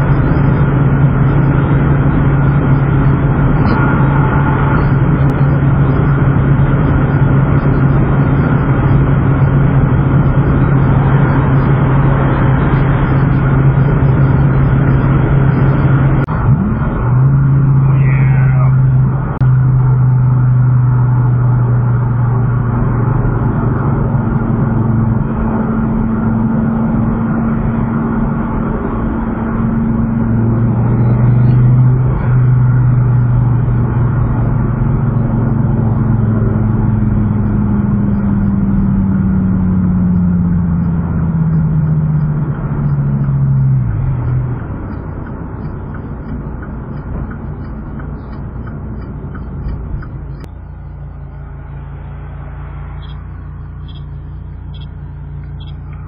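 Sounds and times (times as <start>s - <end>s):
car engine droning: 0.0s - 56.0s
road and tyre noise: 0.0s - 56.0s.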